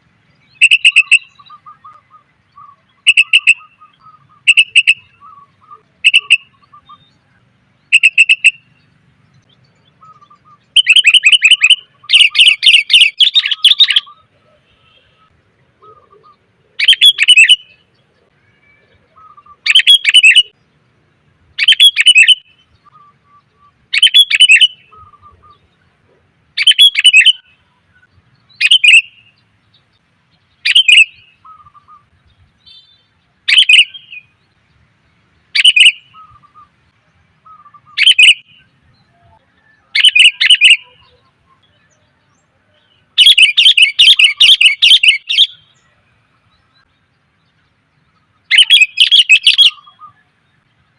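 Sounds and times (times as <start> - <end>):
bird chattering calls: 0.5 - 7.2, 7.8 - 8.9, 9.9 - 17.8, 19.1 - 20.6, 21.6 - 25.7, 26.6 - 27.5, 28.6 - 29.3, 30.6 - 32.0, 32.7 - 34.2, 35.6 - 36.7, 37.4 - 38.7, 39.9 - 41.3, 43.2 - 45.8, 48.5 - 50.2.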